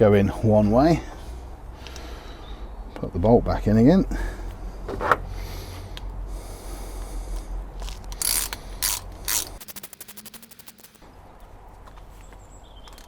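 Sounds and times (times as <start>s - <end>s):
socket ratchet clicking: 8.1s - 11.0s.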